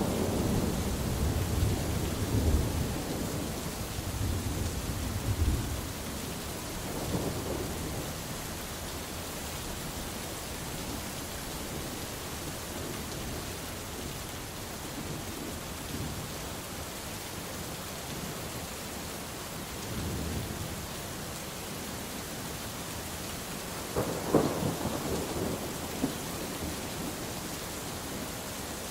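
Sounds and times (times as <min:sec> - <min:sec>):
heavy rain: 0:00.0 - 0:28.9
rolling thunder: 0:24.0 - 0:27.4.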